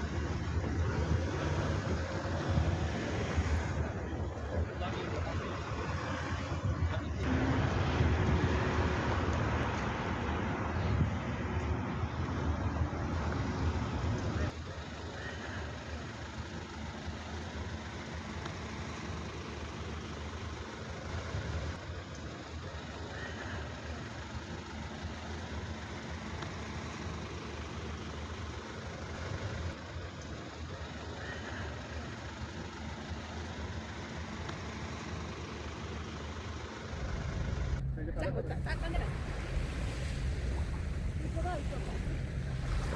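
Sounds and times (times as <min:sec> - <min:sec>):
low rumble: 0:36.8 - 0:42.9.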